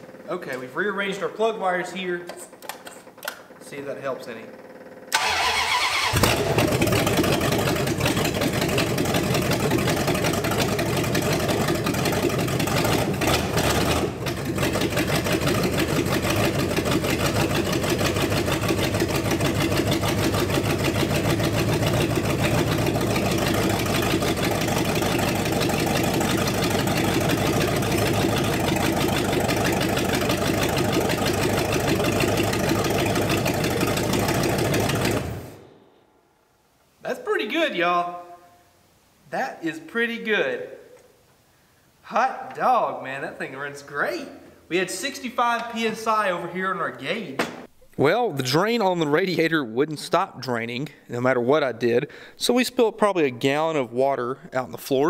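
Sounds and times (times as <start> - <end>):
car engine running: 6.1 - 35.6.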